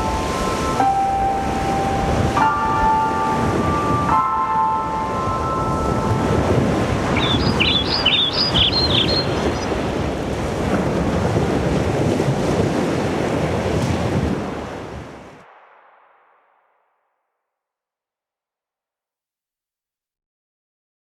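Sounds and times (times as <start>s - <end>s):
ocean surf washing: 0.0s - 16.2s
birds chirping: 5.8s - 9.8s.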